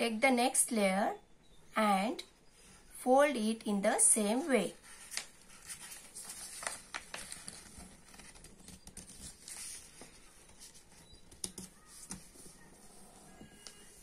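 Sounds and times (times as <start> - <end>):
paper rustling and crinkling: 4.8 - 14.0.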